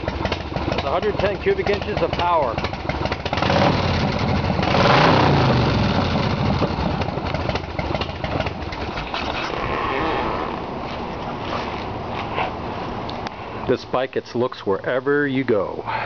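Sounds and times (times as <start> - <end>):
motorcycle engine revving and idling: 0.0 - 12.2.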